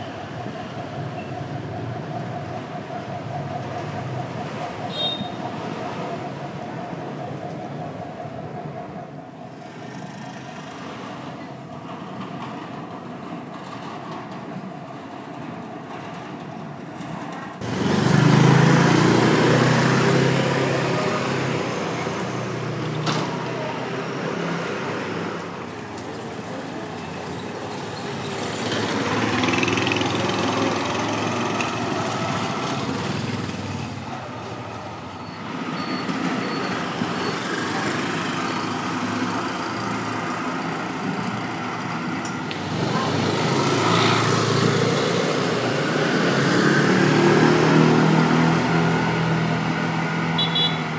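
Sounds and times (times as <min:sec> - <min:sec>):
motorcycles passing: 0:17.6 - 0:50.9.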